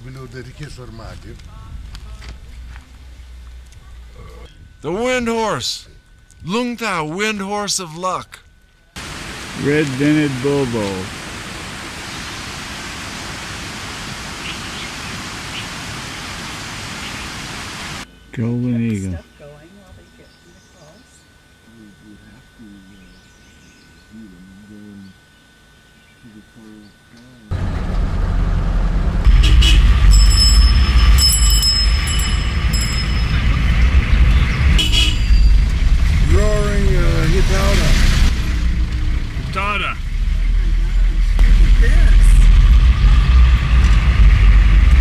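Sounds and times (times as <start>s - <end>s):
vehicle low rumble: 0.0s - 6.8s, 26.0s - 45.0s
high-pitched squeals: 29.2s - 35.9s.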